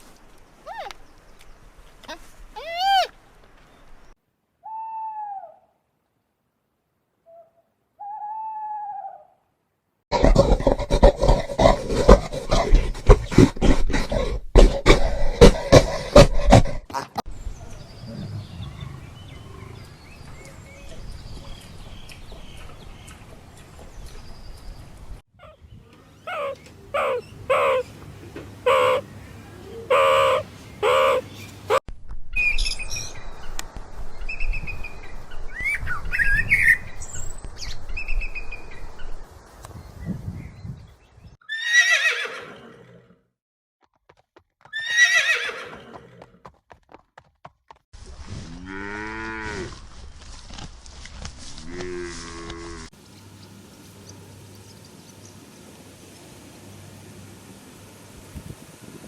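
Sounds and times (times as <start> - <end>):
horse whinnies: 41.5 - 43.0, 44.7 - 46.2.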